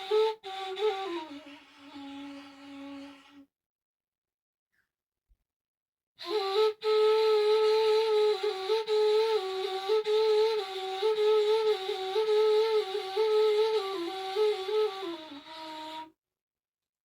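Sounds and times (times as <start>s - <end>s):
solo flute melody: 0.0s - 3.4s, 6.2s - 16.2s.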